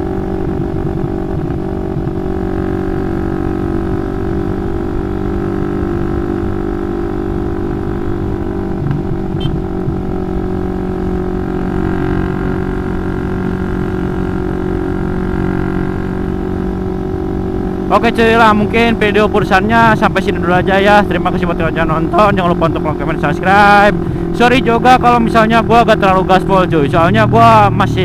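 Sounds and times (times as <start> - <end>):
wind rumbling on microphone: 0.0 - 2.5, 8.2 - 10.4
motorcycle engine running: 0.0 - 28.0.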